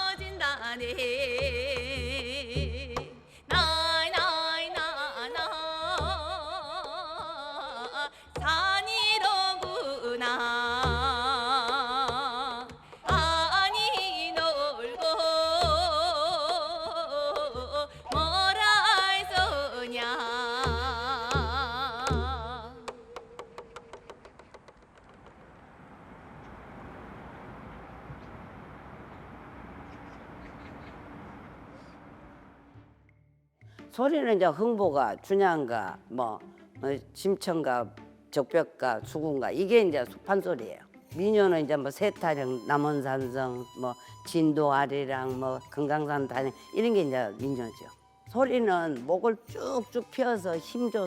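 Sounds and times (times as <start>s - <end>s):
low drum beats: 20.5s - 24.0s.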